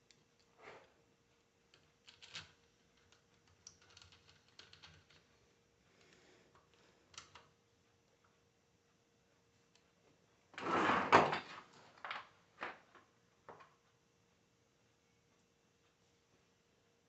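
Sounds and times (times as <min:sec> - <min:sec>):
small metal parts clicking: 0:01.7 - 0:05.3.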